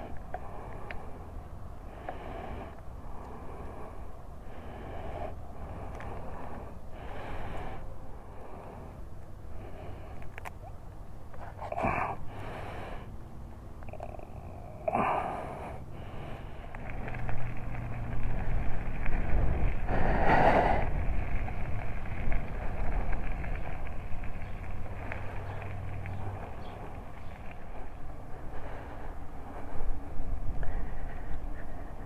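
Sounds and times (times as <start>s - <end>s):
road and traffic noise: 0.0s - 32.0s
steady low hum: 0.0s - 32.0s
vehicle passing: 12.2s - 30.5s.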